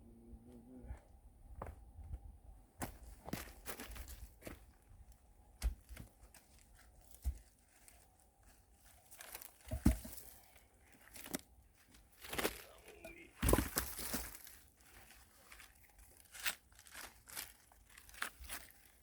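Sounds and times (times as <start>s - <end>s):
rustling and crunching handling: 2.8s - 19.0s
dull knocks of wood: 9.6s - 10.3s.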